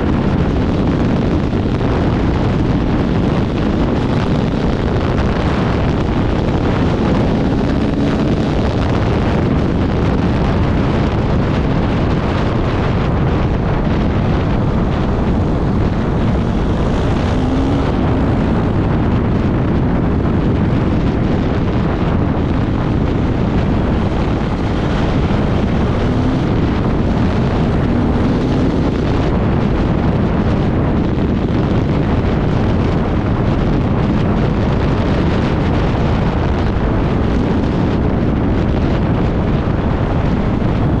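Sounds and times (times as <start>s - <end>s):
motorcycle engine running hard: 0.0s - 41.0s
wind buffeting on microphone: 0.0s - 41.0s.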